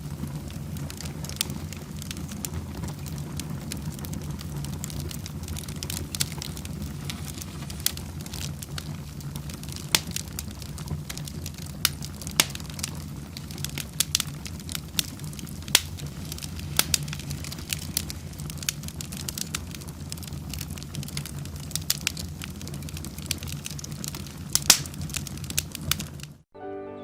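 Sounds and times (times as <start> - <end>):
low rumble of flames: 0.0 - 26.5
wood fire crackling and popping: 0.0 - 26.5.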